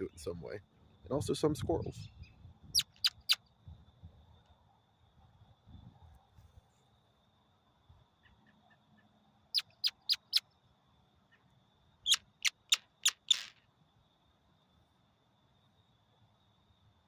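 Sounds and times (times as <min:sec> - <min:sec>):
bird call squeaking chirps: 0:02.2 - 0:03.4, 0:09.5 - 0:10.4, 0:12.1 - 0:13.6.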